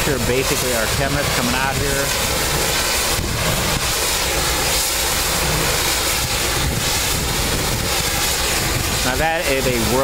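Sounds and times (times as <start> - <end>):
low mechanical drone: 0.0 - 10.0
pressure washer water spray: 0.0 - 10.0.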